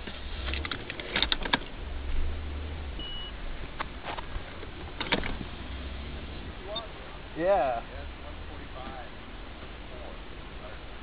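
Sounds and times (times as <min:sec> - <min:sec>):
car engine idling: 0:00.0 - 0:11.0
short high beep: 0:03.0 - 0:03.4, 0:06.7 - 0:06.9.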